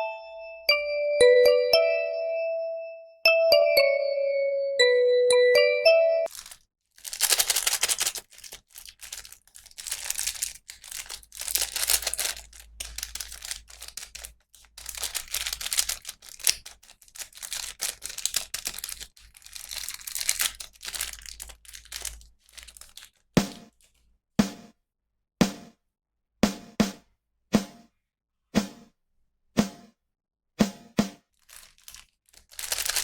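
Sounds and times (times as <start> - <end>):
packaging crinkling and tearing: 6.3 - 24.1, 31.3 - 33.0.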